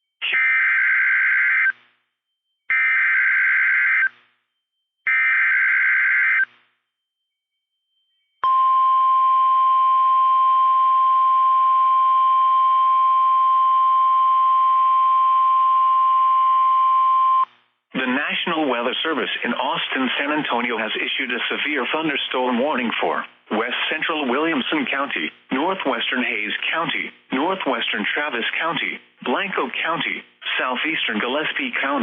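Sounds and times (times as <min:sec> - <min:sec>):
steady single-pitch alarm tone: 0:00.3 - 0:06.5, 0:07.2 - 0:17.4.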